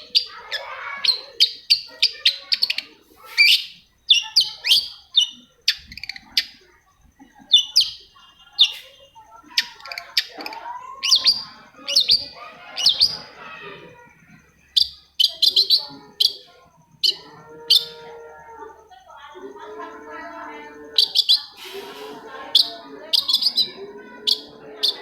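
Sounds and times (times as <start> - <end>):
bird singing sharp chirps: 3.2 - 6.5.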